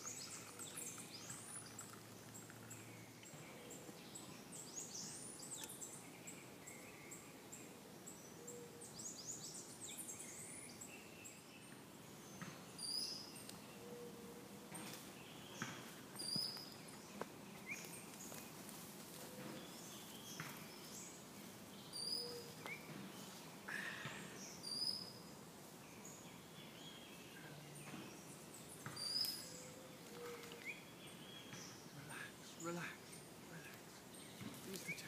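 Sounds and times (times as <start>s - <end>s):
bird chirping call: 0.0s - 18.1s, 21.8s - 23.4s, 24.1s - 25.3s, 25.9s - 35.0s
birds whistling: 15.3s - 18.1s, 21.8s - 25.3s, 26.0s - 33.0s, 33.6s - 35.0s.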